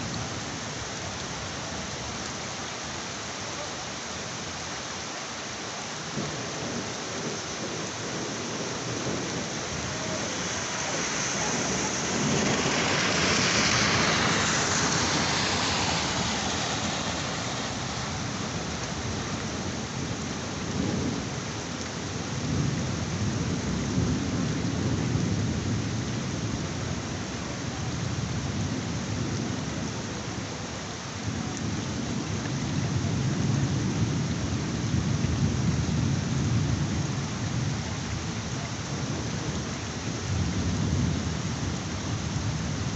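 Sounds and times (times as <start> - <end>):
heavy rain: 0.0 - 42.9
thunder rumbling: 6.1 - 27.3.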